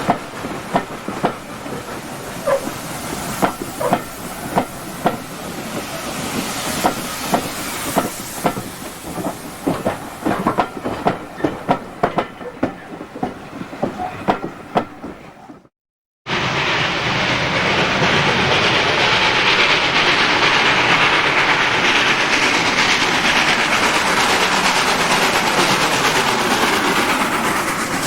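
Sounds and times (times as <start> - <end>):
steady hiss: 0.0 - 10.3
train wheels clicking on rails: 0.0 - 15.7, 16.4 - 28.0.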